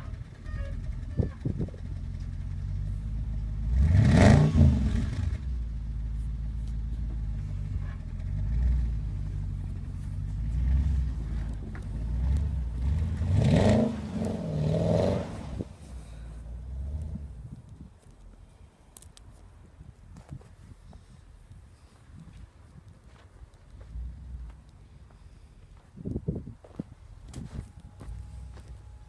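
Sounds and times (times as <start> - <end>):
car engine running and revving: 0.0 - 17.4.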